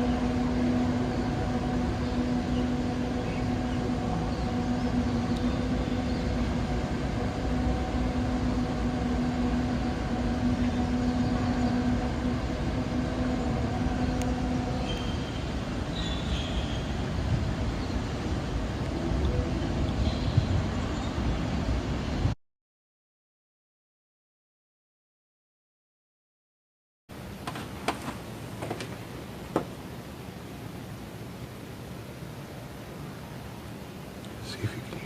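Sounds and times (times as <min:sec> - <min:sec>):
constant rumbling background noise: 0:00.0 - 0:22.4, 0:27.1 - 0:35.0
low droning hum: 0:00.0 - 0:22.4.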